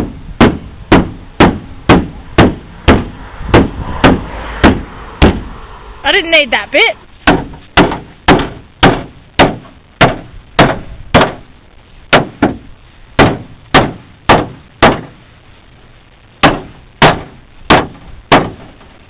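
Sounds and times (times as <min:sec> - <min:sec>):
hammer blows on sheet metal: 0:00.0 - 0:05.6, 0:07.2 - 0:11.5.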